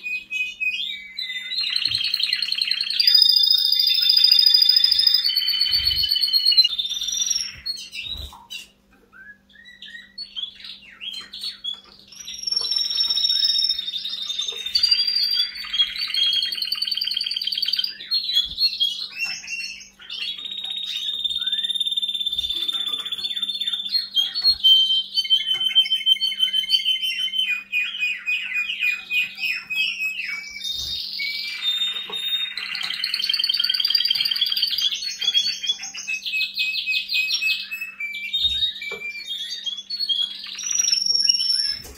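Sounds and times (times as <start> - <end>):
canary singing trills: 0.0 - 41.9.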